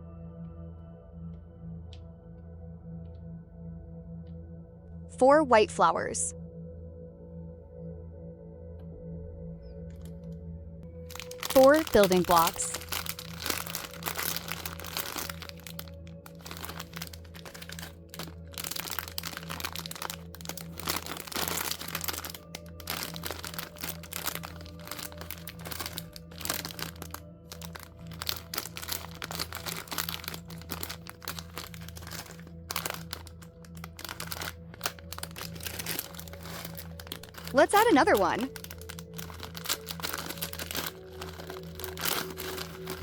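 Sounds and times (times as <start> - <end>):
soft background music: 0.0 - 43.0
packaging crinkling: 11.0 - 43.0
plastic trinkets clicking and clacking: 11.1 - 43.0.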